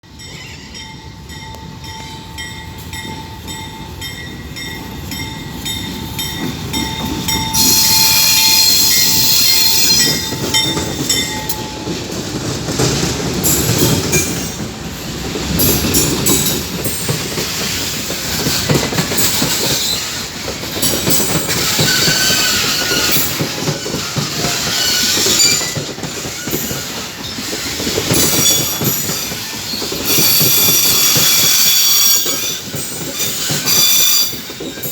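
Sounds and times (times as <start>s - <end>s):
train wheels rumbling: 0.0s - 34.9s
high wheel squeal: 7.3s - 10.9s, 21.5s - 34.9s.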